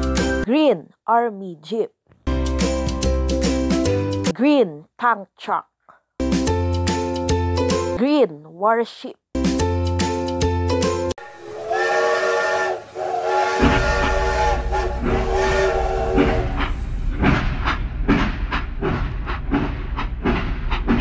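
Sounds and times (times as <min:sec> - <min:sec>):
toy train whistle: 0:11.2 - 0:16.7.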